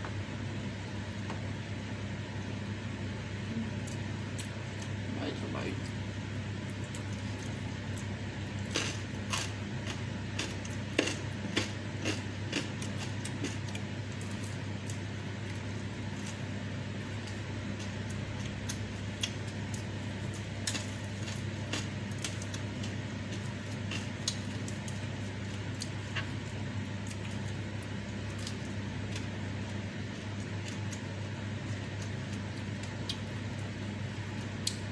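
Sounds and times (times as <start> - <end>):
steady low hum: 0.0 - 34.9
sharp crunches of chewing: 6.7 - 16.5, 17.1 - 31.1.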